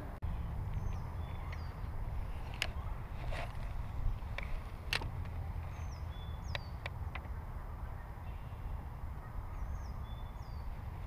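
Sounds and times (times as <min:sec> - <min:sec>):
low steady rumble: 0:00.0 - 0:11.0
bird whistling song: 0:09.5 - 0:10.7.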